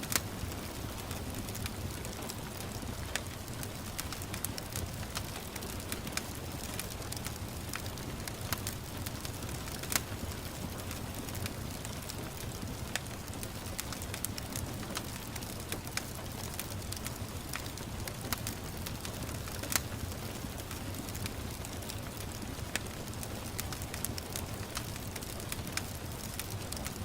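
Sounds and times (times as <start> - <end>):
fire crackles and pops: 0.0 - 27.0
fire rumbling in fireplace: 0.1 - 27.0.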